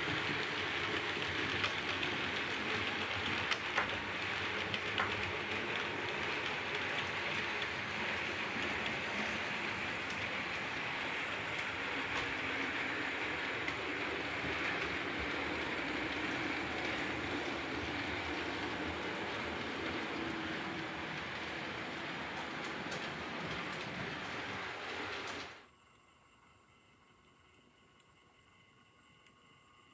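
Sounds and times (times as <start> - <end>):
model trains whirring on track: 0.0 - 26.0.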